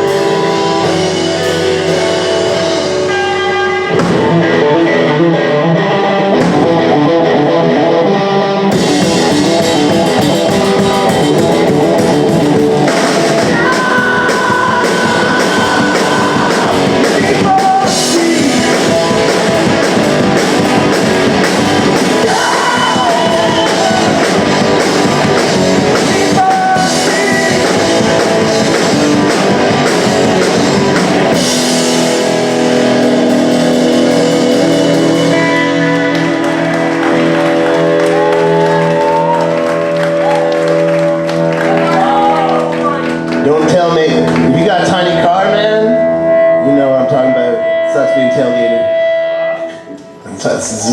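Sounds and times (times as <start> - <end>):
punk rock band playing live: 0.0 - 50.8
drums: 0.0 - 50.9
electric guitar: 0.0 - 50.9
person singing: 12.9 - 19.8, 21.9 - 24.7, 25.8 - 28.8.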